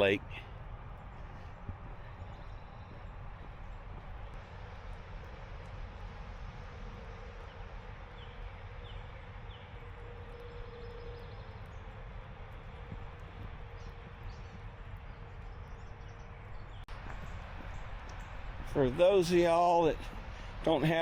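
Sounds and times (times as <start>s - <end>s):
bird chirps: 8.2s - 12.0s.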